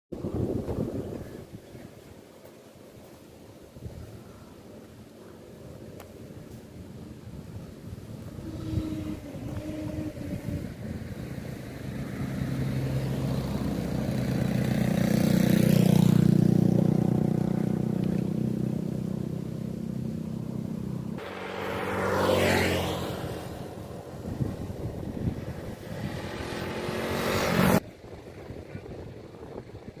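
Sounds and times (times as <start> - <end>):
motorcycle engine running: 13.3 - 22.2.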